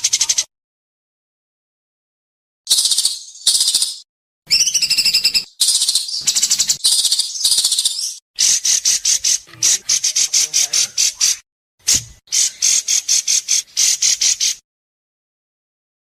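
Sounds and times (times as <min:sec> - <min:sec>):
songbird harsh rasping calls: 0:02.7 - 0:14.6.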